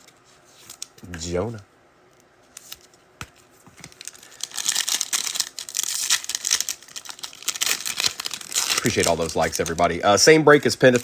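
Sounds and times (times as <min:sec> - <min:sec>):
foil wrappers tearing and crinkling: 0:03.8 - 0:11.0.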